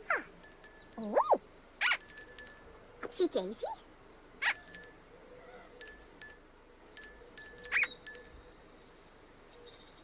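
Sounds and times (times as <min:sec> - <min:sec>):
high bell-like chimes: 0:00.4 - 0:01.2, 0:02.0 - 0:03.0, 0:04.4 - 0:05.1, 0:05.8 - 0:08.7.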